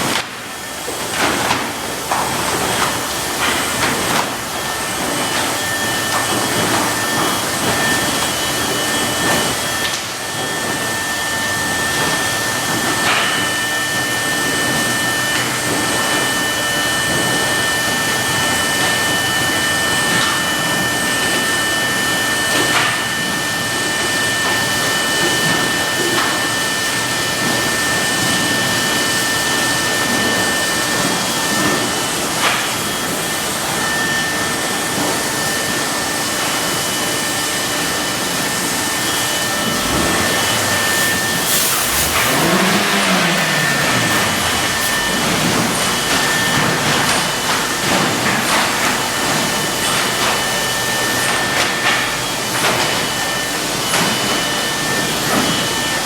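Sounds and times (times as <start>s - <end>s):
constant high whine: 2.4s - 50.5s
car wash rushing noise: 36.3s - 56.0s
low motor pitch: 39.0s - 47.2s.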